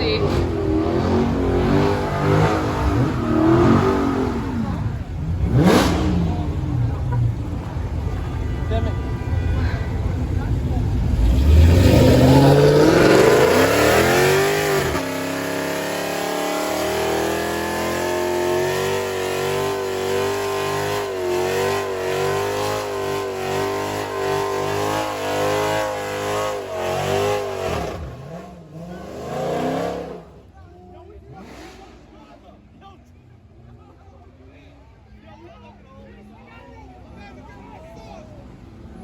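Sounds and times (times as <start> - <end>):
car engine revving hard: 0.0 - 7.4, 11.0 - 30.4, 31.3 - 32.1.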